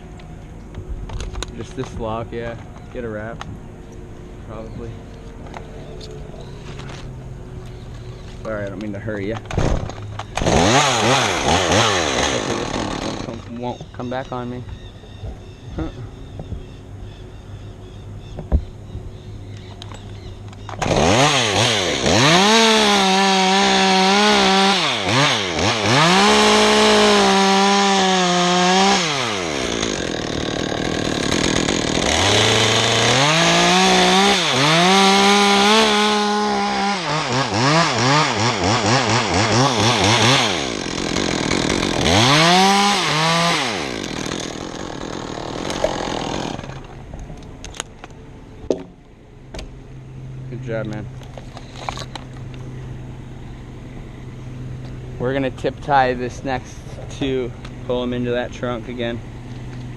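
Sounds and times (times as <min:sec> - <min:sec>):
chainsaw cutting wood: 0:09.5 - 0:13.6, 0:20.7 - 0:47.0.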